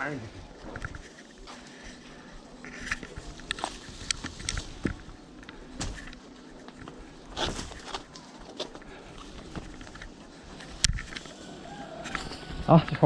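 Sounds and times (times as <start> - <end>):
clicks and rustles of handling: 2.6 - 11.3.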